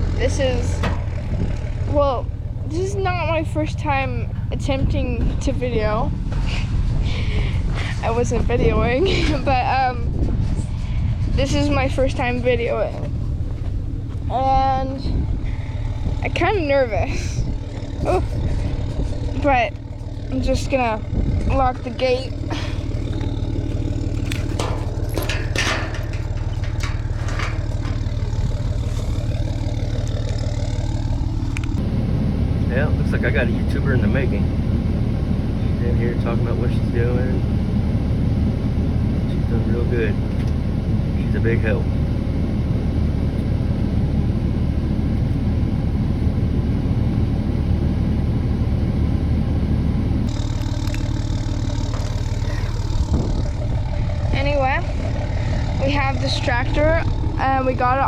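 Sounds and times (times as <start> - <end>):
vehicle engine idling: 0.0 - 58.0
sharp clanks: 0.6 - 1.8, 22.9 - 30.8.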